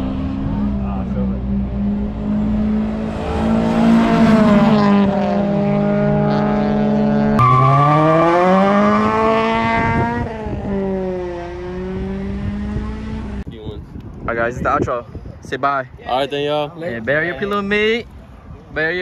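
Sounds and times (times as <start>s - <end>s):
car engines revving: 0.0s - 13.5s.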